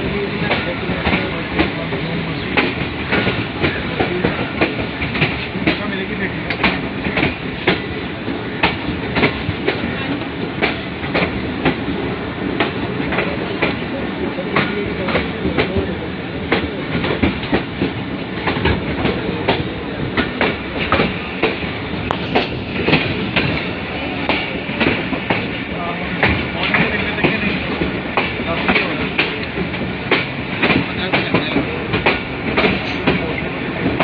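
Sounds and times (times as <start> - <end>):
train rumble: 0.0 - 34.0
wheels clicking over rail joints: 16.5 - 34.0.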